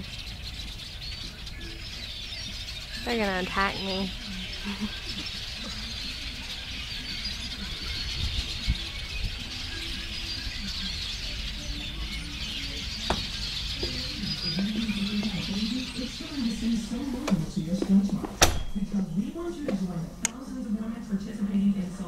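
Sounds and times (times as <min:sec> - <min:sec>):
wind rumbling on microphone: 0:00.0 - 0:20.2
flock of small birds chattering: 0:00.0 - 0:22.0.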